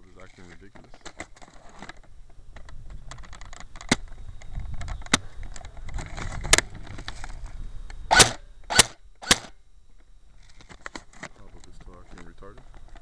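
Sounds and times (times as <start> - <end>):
airsoft rifle shots: 8.1 - 9.5.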